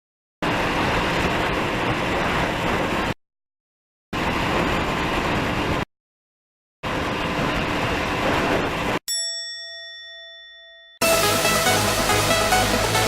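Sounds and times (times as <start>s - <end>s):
bell-like ding: 9.1s - 11.0s
electronic music: 11.0s - 13.0s
steady rushing noise: 11.0s - 13.0s.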